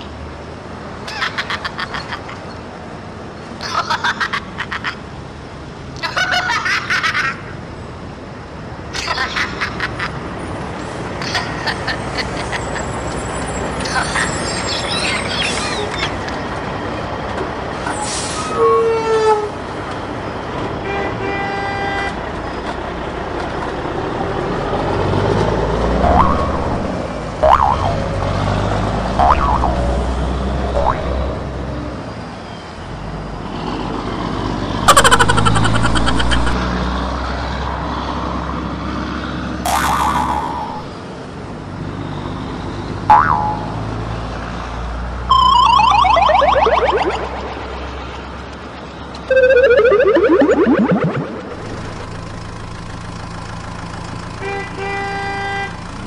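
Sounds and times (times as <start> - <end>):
click with springy pitch swoop: 26.0 - 28.0, 43.1 - 43.8
rapid falling electronic chirps: 26.0 - 28.0, 34.9 - 36.6, 45.3 - 47.8, 49.3 - 51.6.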